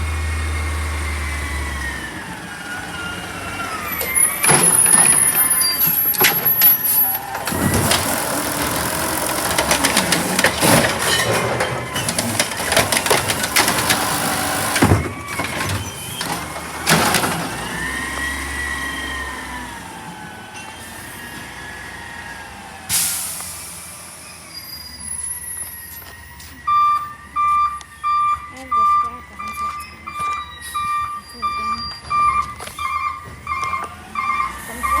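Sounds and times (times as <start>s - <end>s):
truck whining: 0.0s - 35.0s
clattering knocks and bangs: 4.0s - 17.6s.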